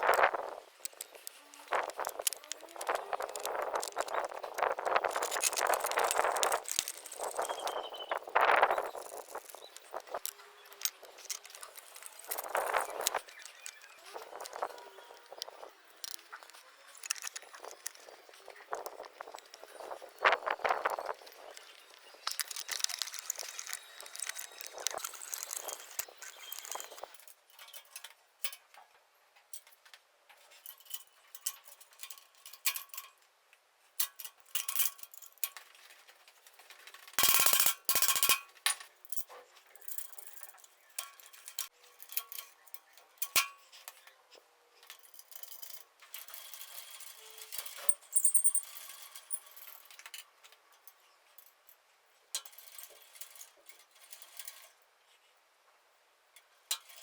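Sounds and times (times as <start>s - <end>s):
metal parts clinking and knocking: 0.0s - 28.1s, 37.2s - 42.6s, 44.9s - 50.2s.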